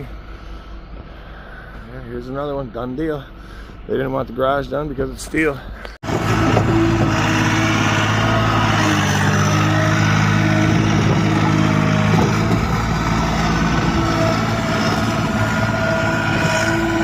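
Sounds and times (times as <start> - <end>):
vehicle engine running: 6.0 - 17.0.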